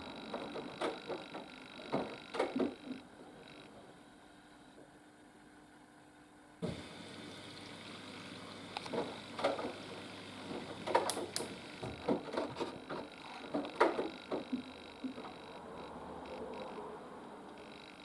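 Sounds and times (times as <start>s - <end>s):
washing machine drum turning: 6.6s - 8.1s.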